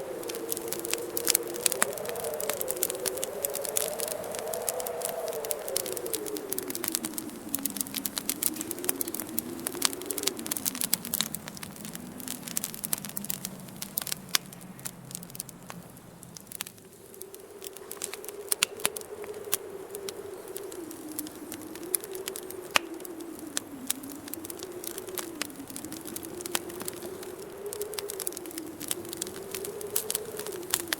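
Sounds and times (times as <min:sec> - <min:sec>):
low howling wind: 0:00.0 - 0:30.9
wood fire crackling and popping: 0:00.0 - 0:30.9.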